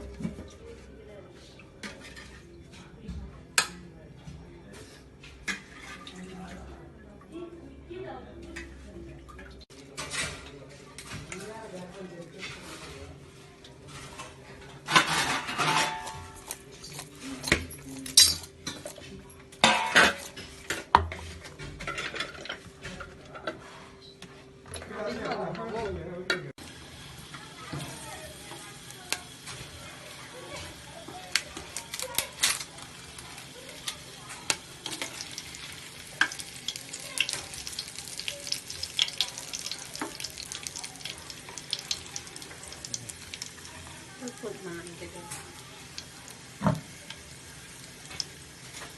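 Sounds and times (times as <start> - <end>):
metal utensils clinking and scraping: 13.8 - 23.9, 30.3 - 46.1
food sizzling in hot oil: 26.6 - 48.9
utensil stirring in pan: 26.6 - 48.9.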